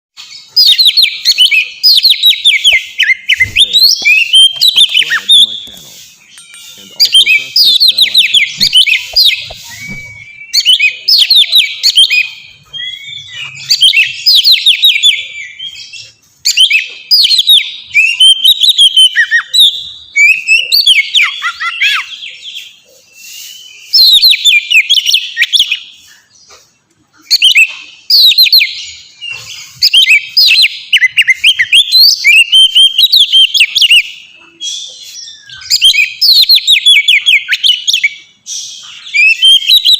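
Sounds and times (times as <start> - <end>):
bird singing whistled trills: 0.2 - 26.6, 27.2 - 39.9.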